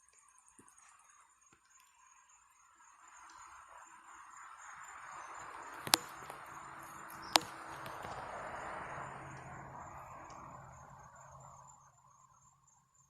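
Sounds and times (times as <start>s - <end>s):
night insects trilling: 0.3s - 13.0s
sharp clicks: 5.4s - 8.7s.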